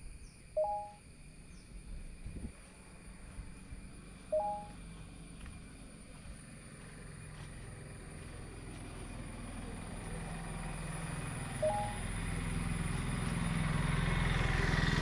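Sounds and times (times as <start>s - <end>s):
short electronic beep: 0.6s - 1.0s, 4.3s - 4.8s, 11.6s - 12.0s.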